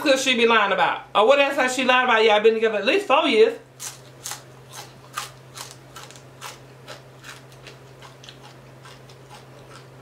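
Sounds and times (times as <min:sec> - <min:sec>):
steady low hum: 0:00.0 - 0:10.0
crunching fried fish: 0:03.8 - 0:10.0.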